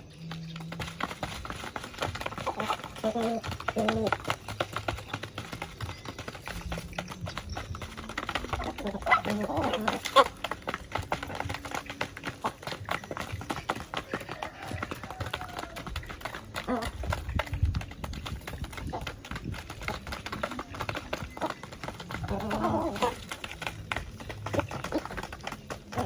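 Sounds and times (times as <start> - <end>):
poultry calling: 0.0 - 17.5, 20.2 - 26.0.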